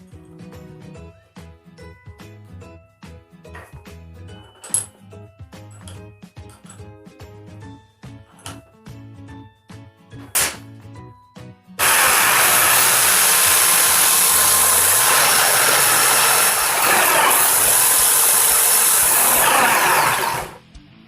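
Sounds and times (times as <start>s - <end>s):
electric drill whirring: 11.8s - 20.6s.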